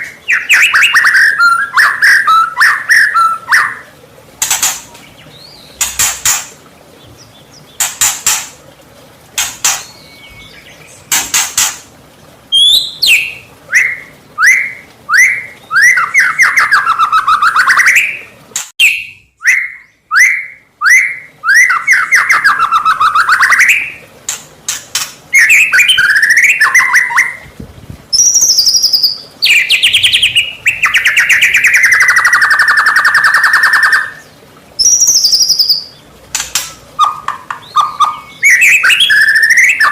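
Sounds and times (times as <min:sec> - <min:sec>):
songbird singing varied whistles: 0:12.5 - 0:18.2, 0:18.8 - 0:24.0, 0:25.4 - 0:27.4, 0:28.2 - 0:34.2, 0:34.8 - 0:35.9, 0:36.6 - 0:39.9.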